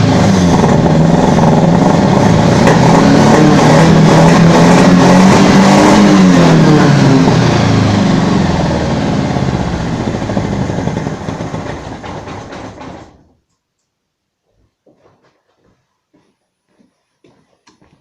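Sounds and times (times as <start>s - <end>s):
car engine running: 0.0s - 13.2s.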